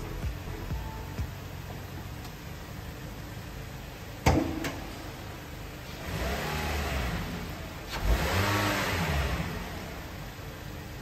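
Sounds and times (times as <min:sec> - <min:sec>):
car engine revving: 0:04.8 - 0:11.0.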